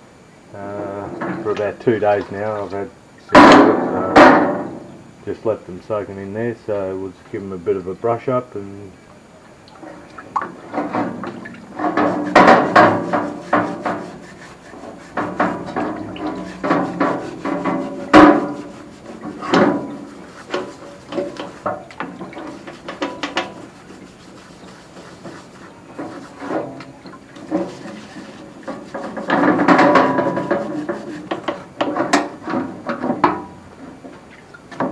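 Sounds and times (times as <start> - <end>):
brush scrubbing pistons in liquid: 9.8 - 32.8.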